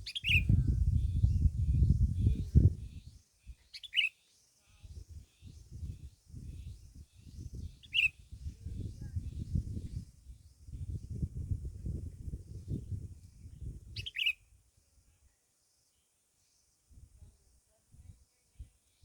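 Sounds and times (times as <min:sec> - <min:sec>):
bird chirping: 0:00.0 - 0:01.5, 0:02.8 - 0:04.3, 0:06.6 - 0:08.2, 0:13.9 - 0:14.4.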